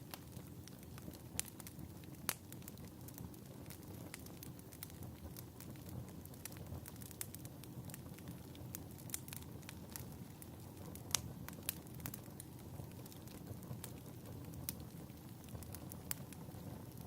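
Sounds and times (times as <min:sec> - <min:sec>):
fireplace fire crackling: 0:00.0 - 0:17.0.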